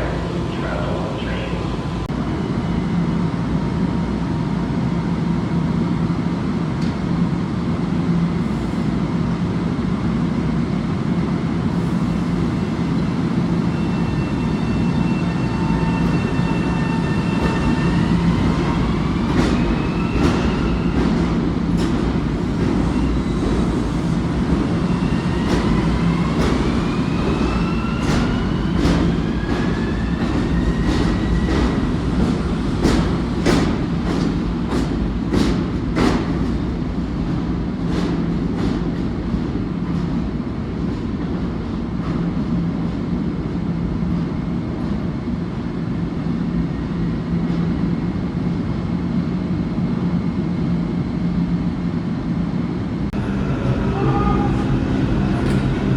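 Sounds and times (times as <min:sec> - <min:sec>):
train low rumble: 0:00.0 - 0:55.9
traction motors whining: 0:53.2 - 0:55.9.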